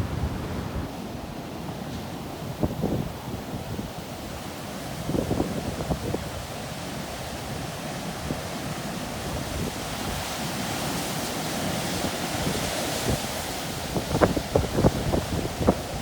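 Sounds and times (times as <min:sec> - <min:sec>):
ocean surf rushing: 0:00.0 - 0:03.3
wind buffeting microphone: 0:00.0 - 0:06.5, 0:11.8 - 0:16.0.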